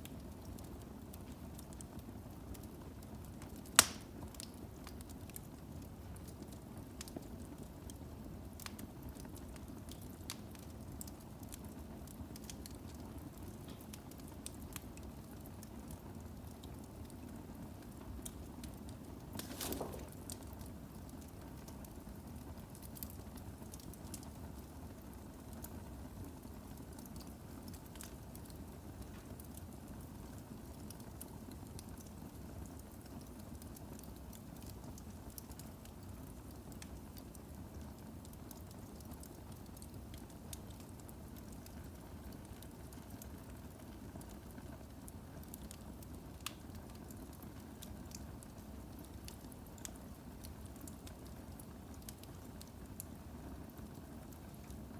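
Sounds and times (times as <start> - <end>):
firewood crackling and popping: 0.0 - 54.9.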